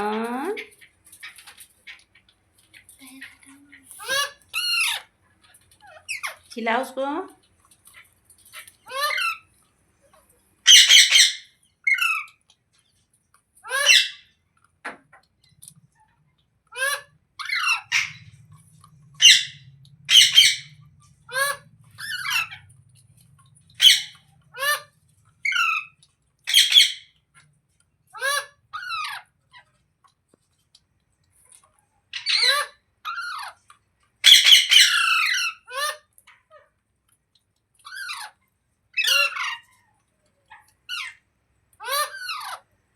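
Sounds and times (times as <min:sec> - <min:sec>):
parakeets squawking: 0:03.1 - 0:06.6, 0:08.5 - 0:09.5, 0:10.7 - 0:12.4, 0:13.6 - 0:14.3, 0:16.7 - 0:27.2, 0:28.1 - 0:29.6, 0:32.1 - 0:33.6, 0:34.2 - 0:36.0, 0:37.8 - 0:38.4, 0:39.0 - 0:39.7, 0:40.9 - 0:41.2, 0:41.8 - 0:42.7.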